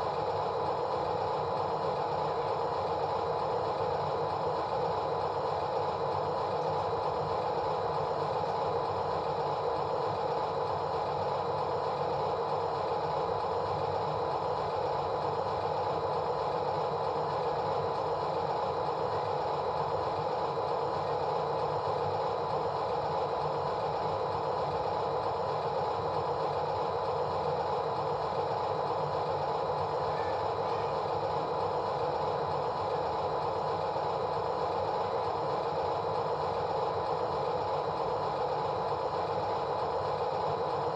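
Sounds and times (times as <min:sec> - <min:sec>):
machine drone and rattle: 0:00.0 - 0:40.9.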